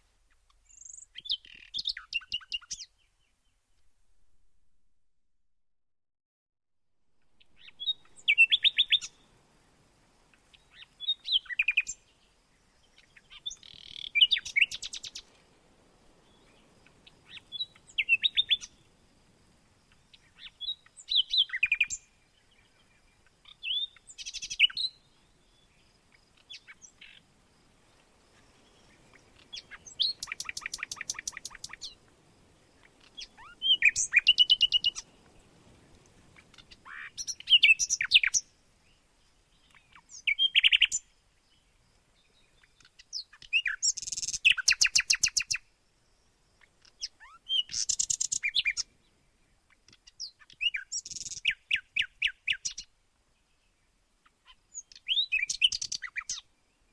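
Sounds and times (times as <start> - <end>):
songbird trilling: 0.7 - 2.9, 7.4 - 9.2, 10.5 - 12.0, 13.0 - 15.3, 16.3 - 18.8, 19.9 - 22.2, 23.2 - 25.7, 28.7 - 32.0, 32.8 - 35.1, 36.4 - 38.5, 39.6 - 41.6, 42.4 - 45.6, 46.6 - 48.9, 49.7 - 52.9, 54.4 - 56.5.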